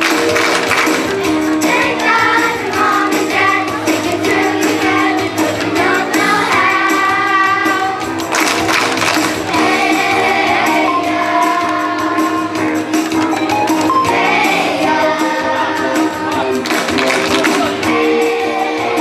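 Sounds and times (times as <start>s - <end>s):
instrumental accompaniment: 0.0s - 19.0s
jingling tambourine beat: 0.0s - 19.0s
children's chorus singing: 0.3s - 8.2s, 8.9s - 19.0s.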